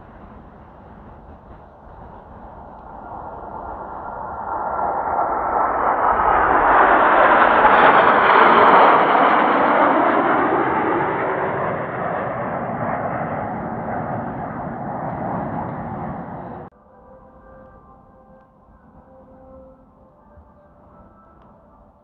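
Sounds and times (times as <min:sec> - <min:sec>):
jets passing: 0:00.0 - 0:16.7.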